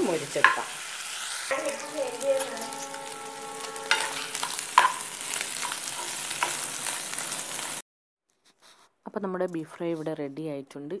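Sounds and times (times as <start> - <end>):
meat sizzling in a pan: 0.0 - 7.8
spatula knocking on pan: 0.4 - 0.7, 1.5 - 6.9.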